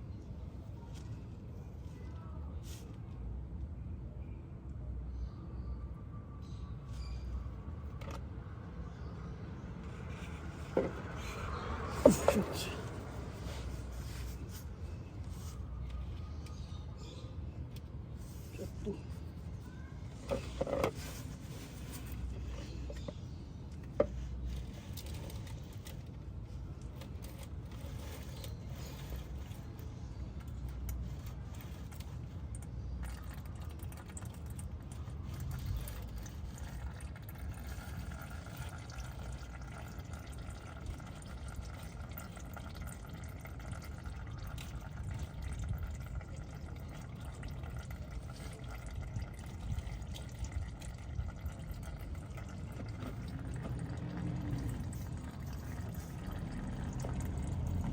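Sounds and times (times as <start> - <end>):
oil trickling and splashing: 7.0 - 57.9.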